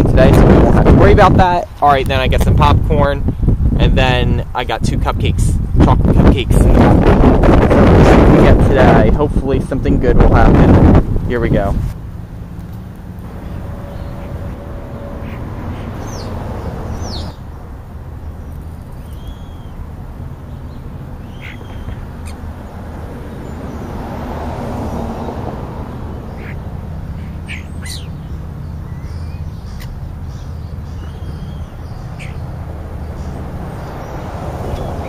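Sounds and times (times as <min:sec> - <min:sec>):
low outdoor rumble: 0:00.0 - 0:35.0
wild birds chirping: 0:12.0 - 0:35.0.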